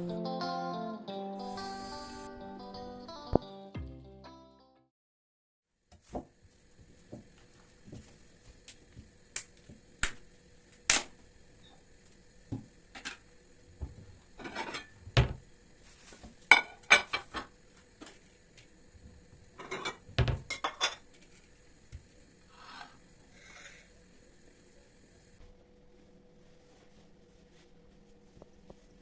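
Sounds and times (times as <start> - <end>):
dishes and utensils clinking: 14.4 - 15.0, 16.5 - 17.5, 19.6 - 21.0.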